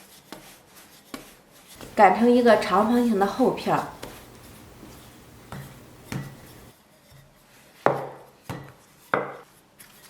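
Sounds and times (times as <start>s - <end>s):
utensils knocking on wooden board: 4.0s - 6.7s.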